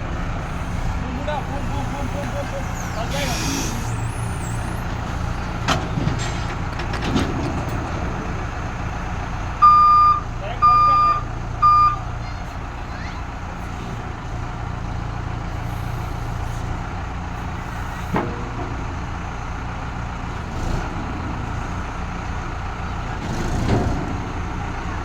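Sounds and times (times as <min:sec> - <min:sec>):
diesel engine running: 0:00.0 - 0:25.0
heavy clunk: 0:04.8 - 0:09.1, 0:17.8 - 0:19.5
reversing alarm beeping: 0:09.6 - 0:12.1.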